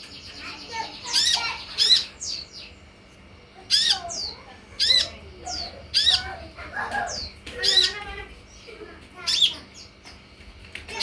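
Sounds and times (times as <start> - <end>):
bird squawking calls: 0.8 - 2.4, 3.7 - 6.4.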